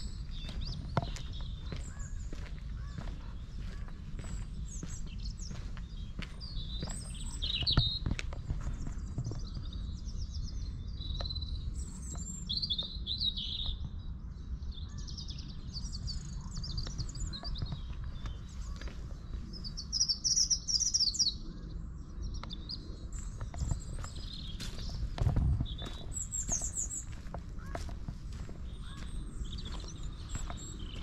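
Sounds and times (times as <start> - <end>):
steady low rumble: 0.0 - 13.0, 21.6 - 31.0
songbirds singing and chirping: 0.0 - 31.0.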